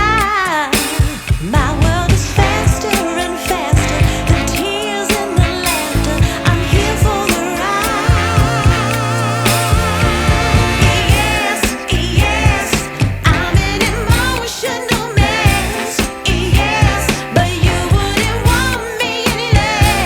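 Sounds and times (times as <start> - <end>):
person singing over a beat: 0.0 - 20.0.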